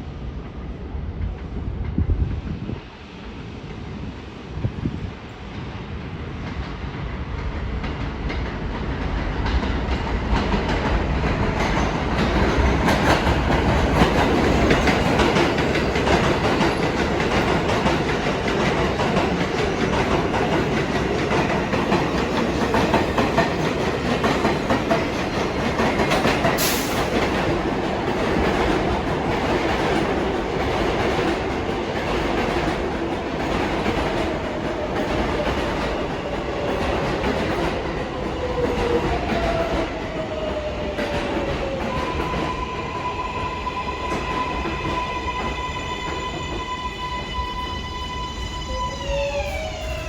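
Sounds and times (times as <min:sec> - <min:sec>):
train wheels clattering: 0:06.4 - 0:42.8.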